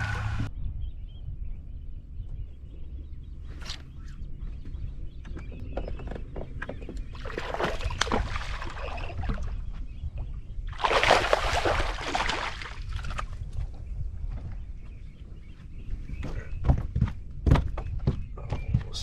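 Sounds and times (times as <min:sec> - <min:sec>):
steady low rumble: 0:00.0 - 0:07.4, 0:08.2 - 0:19.0
water splashing and sloshing: 0:06.7 - 0:13.7.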